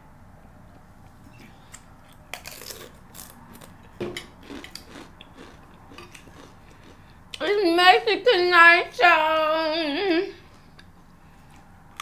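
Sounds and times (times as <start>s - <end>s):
chewing crunches: 1.7s - 7.4s, 10.5s - 12.0s.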